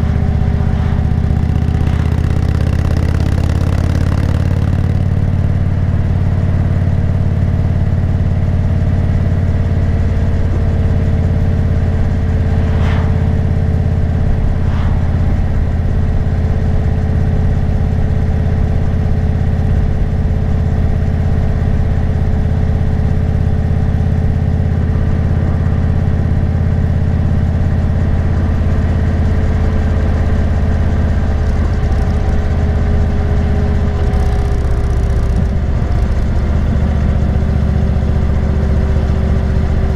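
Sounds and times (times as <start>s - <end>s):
motorcycle engine cruising: 0.0s - 18.0s
road and wind noise: 0.0s - 29.0s.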